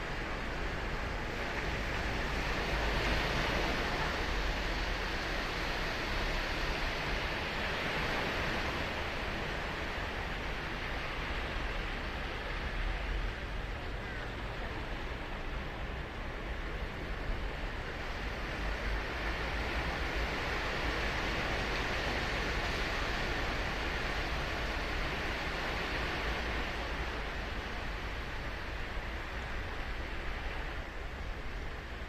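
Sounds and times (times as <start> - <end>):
ocean surf breaking on beach: 0.0 - 32.0.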